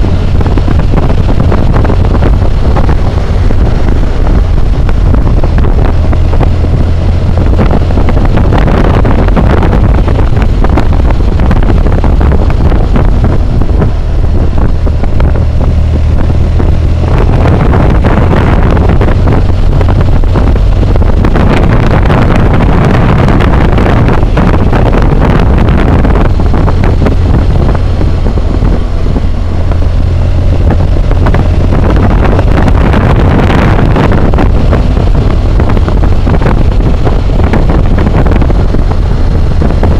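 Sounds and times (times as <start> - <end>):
motorcycle engine running: 0.0 - 39.9
wind roar on microphone: 0.0 - 39.9.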